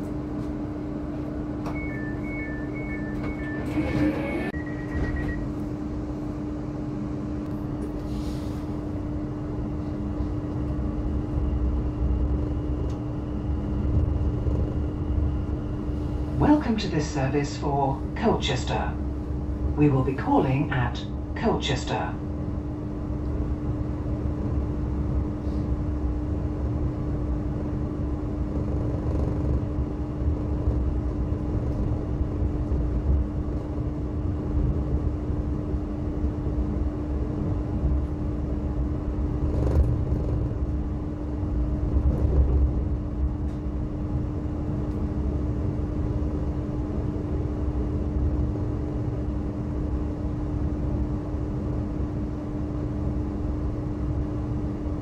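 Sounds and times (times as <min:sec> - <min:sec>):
constant hum: 0:00.0 - 0:55.0
train wheels rumbling on rail: 0:28.0 - 0:35.1, 0:37.2 - 0:45.0.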